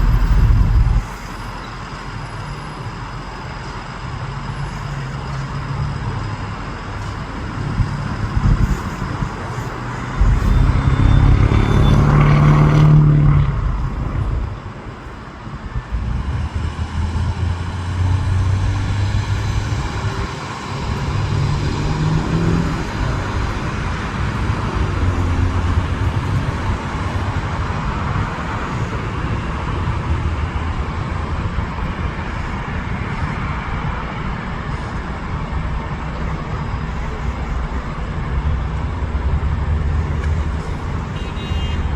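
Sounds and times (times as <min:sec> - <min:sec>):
jet engine noise: 0:00.0 - 0:15.9
road traffic rumble: 0:00.0 - 0:41.9.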